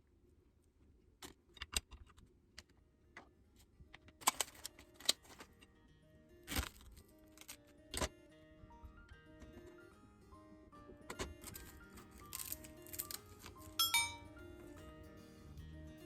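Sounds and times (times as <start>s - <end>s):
soft background music: 4.1s - 16.0s.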